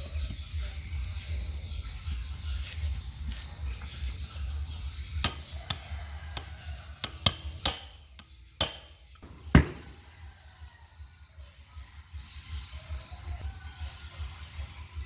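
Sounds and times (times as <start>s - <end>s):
hammer striking metal: 5.2s - 10.0s.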